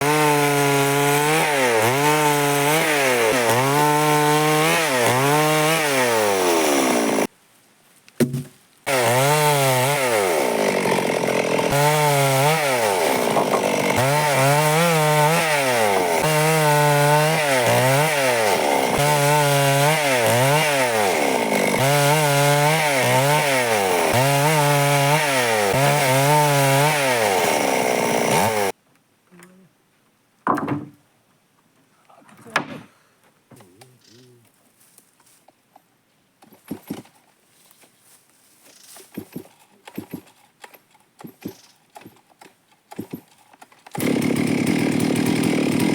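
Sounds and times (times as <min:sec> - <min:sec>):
chainsaw cutting wood: 0:00.0 - 0:07.3, 0:08.2 - 0:28.8, 0:39.1 - 0:45.9.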